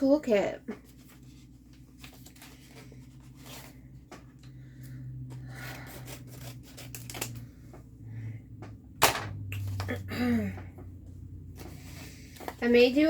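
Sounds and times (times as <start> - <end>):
packaging rubbing and scraping: 5.5 - 7.6.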